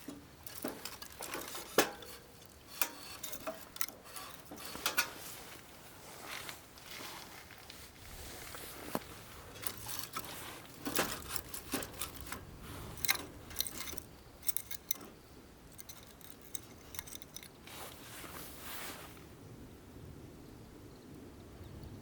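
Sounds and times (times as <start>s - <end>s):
clicks taps and scrapes: 0.0s - 5.6s
brief rustling: 0.0s - 15.1s, 15.8s - 19.2s.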